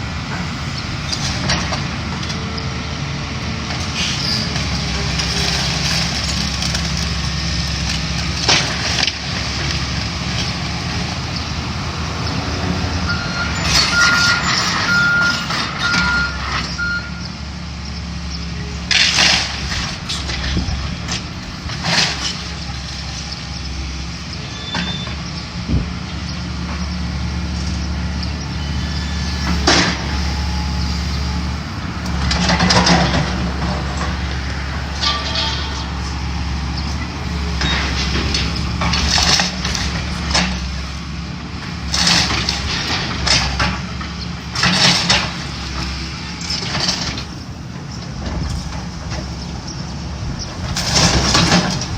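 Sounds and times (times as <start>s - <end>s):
diesel machinery running: 0.0s - 51.9s
reversing alarm beeps: 13.1s - 17.3s, 30.3s - 31.4s
debris crashing and falling: 34.9s - 36.1s.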